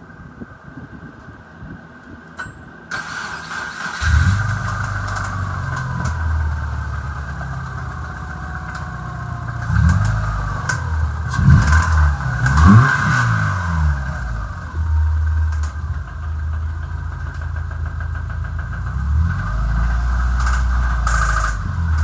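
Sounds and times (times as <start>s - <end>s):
car engine revving: 3.0s - 22.0s
engine knocking: 4.6s - 14.1s, 14.8s - 22.0s.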